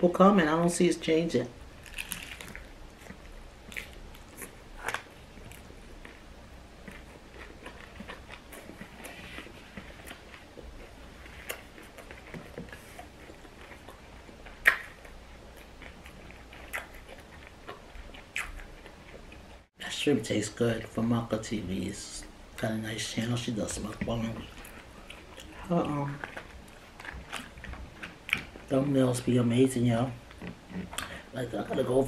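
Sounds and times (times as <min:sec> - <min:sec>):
person chewing crunchy chip: 0:01.8 - 0:19.2, 0:23.8 - 0:28.8.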